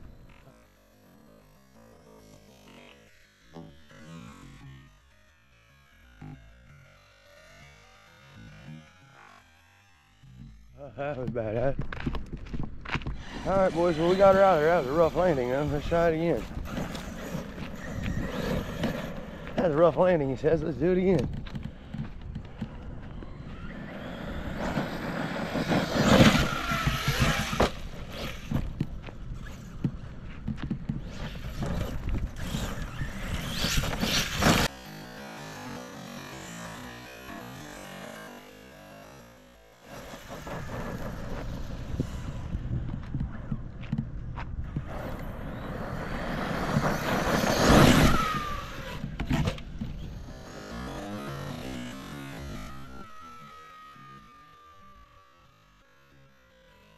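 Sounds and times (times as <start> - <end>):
electric motor whining: 6.0 - 56.9
tyres on gravel: 10.8 - 34.7, 39.8 - 54.3.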